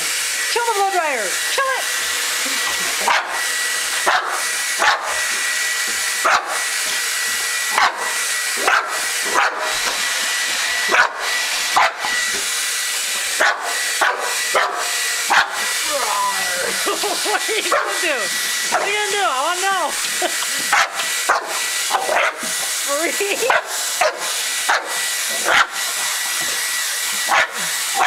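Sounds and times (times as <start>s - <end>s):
blow dryer hissing: 0.0s - 28.0s
dog barking: 3.0s - 3.4s, 4.0s - 5.1s, 6.2s - 6.6s, 7.8s - 8.0s, 8.6s - 9.7s, 10.9s - 11.2s, 11.8s - 12.0s, 13.4s - 15.6s, 20.7s - 22.4s, 23.5s - 25.8s, 27.3s - 28.0s.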